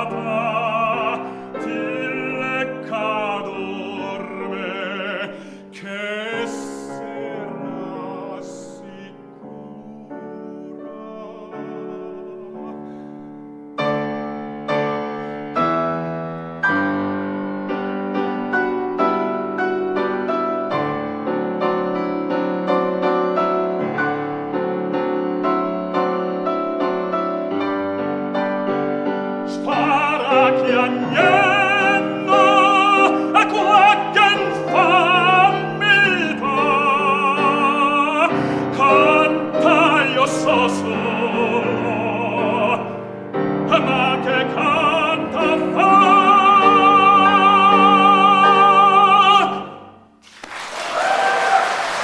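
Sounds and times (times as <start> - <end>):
operatic tenor singing: 0.0 - 13.4, 29.4 - 50.0
piano accompaniment: 0.0 - 52.0
applause: 50.2 - 52.0.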